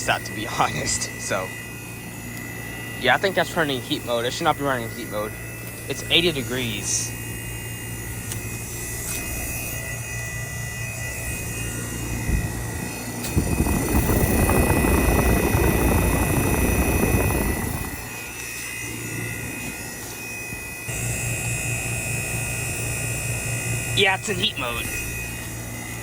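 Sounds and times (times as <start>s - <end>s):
air conditioner humming: 0.0s - 26.0s
rough rushing noise: 13.3s - 18.3s.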